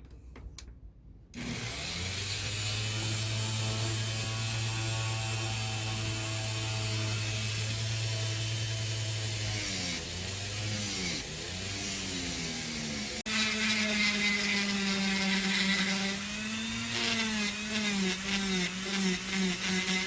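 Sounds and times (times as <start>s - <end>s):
power tool motor running: 1.4s - 20.0s.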